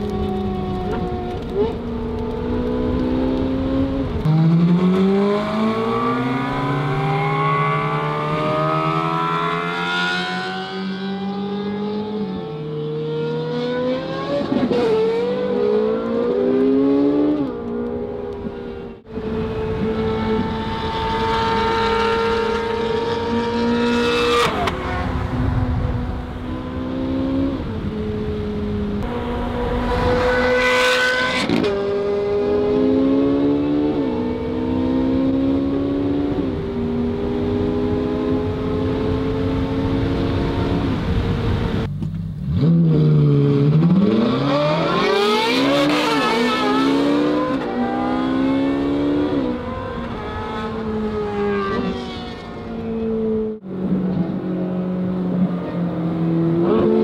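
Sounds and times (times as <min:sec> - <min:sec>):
passing car rush: 0:03.8 - 0:34.8.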